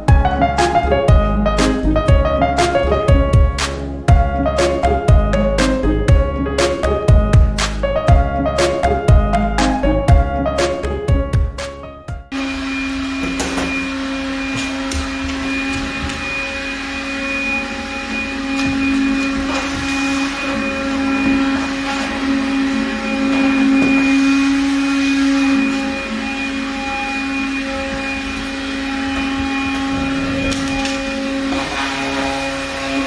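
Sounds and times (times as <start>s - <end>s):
piano music: 0.0s - 33.0s
vacuum cleaner humming: 12.3s - 33.0s.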